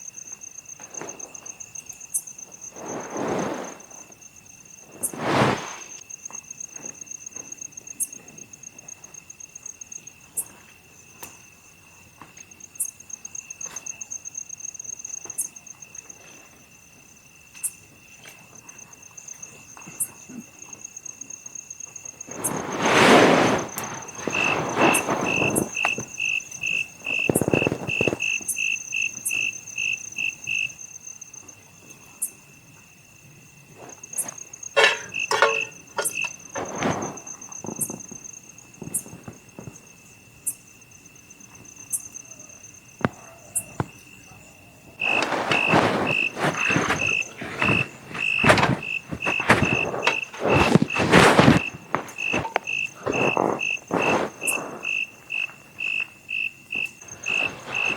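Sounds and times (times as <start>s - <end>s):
insects chirping: 0.0s - 57.9s
thin insect trill: 0.0s - 57.9s
crackles and knocks: 22.2s - 29.7s, 33.8s - 40.0s, 43.0s - 44.1s, 45.0s - 57.9s.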